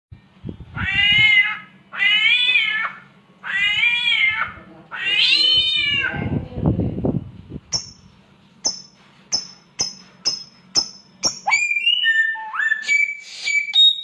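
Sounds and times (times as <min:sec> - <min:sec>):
bird making meow-like calls: 0:00.7 - 0:06.4.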